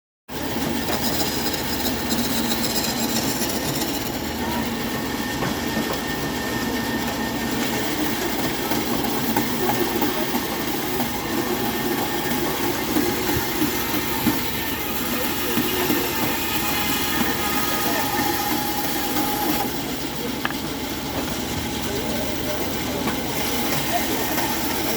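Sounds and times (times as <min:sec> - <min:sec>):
bandsaw cutting: 0:00.4 - 0:20.0.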